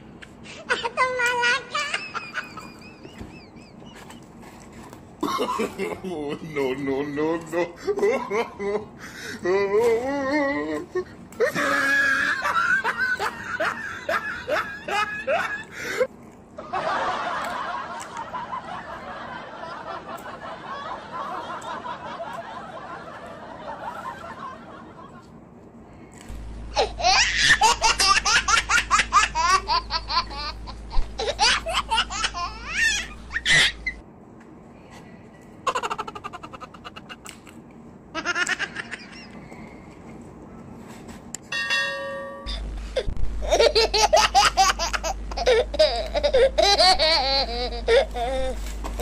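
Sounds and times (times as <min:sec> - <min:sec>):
high-pitched giggling laughter: 0:00.5 - 0:04.3, 0:05.2 - 0:25.4, 0:26.7 - 0:34.0, 0:35.6 - 0:37.4, 0:38.2 - 0:39.4, 0:42.4 - 0:49.0
high squeals of laughter: 0:11.4 - 0:15.8, 0:26.8 - 0:34.0.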